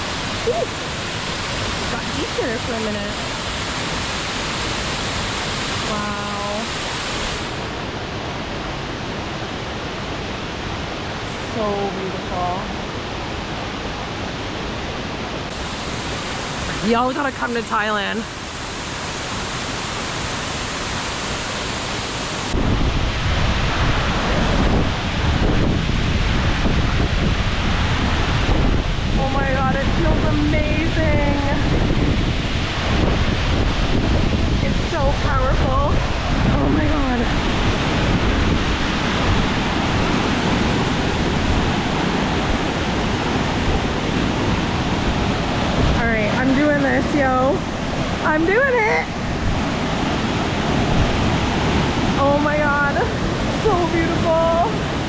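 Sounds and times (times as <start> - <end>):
waterfall rushing: 0.0 - 55.0
wind buffeting microphone: 22.4 - 55.0.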